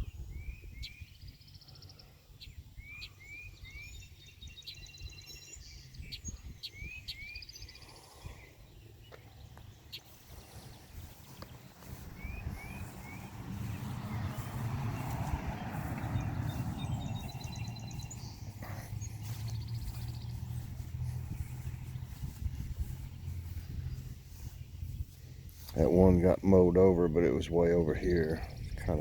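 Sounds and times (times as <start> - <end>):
low rumble: 10.4 - 25.8
bird whistling rising notes: 12.0 - 13.4.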